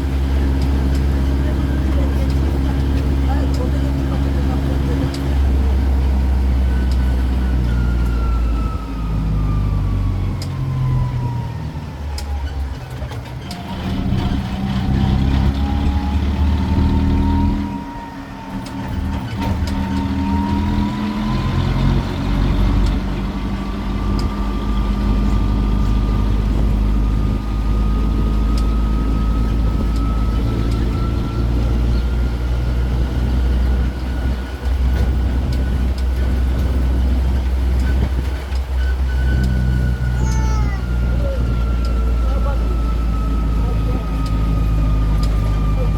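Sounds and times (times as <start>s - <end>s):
train engine whine: 0.0s - 45.9s.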